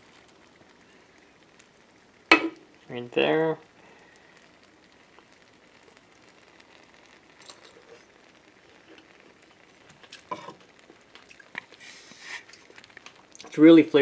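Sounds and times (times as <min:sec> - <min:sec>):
faint chewing: 0:08.7 - 0:13.5.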